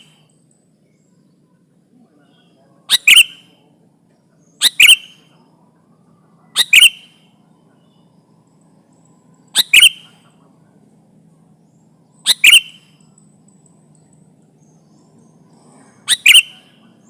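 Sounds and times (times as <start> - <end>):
bird calling two quick notes: 12.3 - 12.8.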